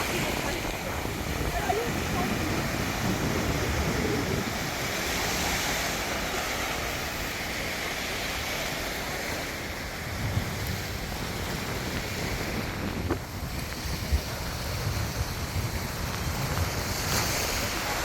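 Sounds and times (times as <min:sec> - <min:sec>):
sea water rushing: 0:00.0 - 0:18.0
wind: 0:00.0 - 0:18.0
wind buffeting microphone: 0:00.0 - 0:18.0.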